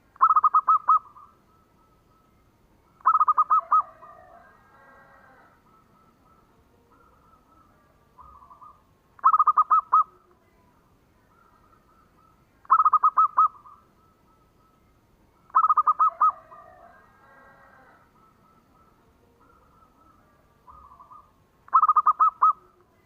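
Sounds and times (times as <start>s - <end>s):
dove cooing staccato: 0.0s - 1.4s, 3.0s - 10.3s, 11.3s - 14.4s, 15.4s - 22.9s
faint cooing of other doves: 0.0s - 23.0s.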